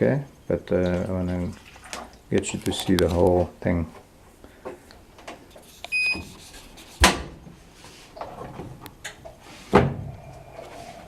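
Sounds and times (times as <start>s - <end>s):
washer electronic beep: 5.9s - 6.3s.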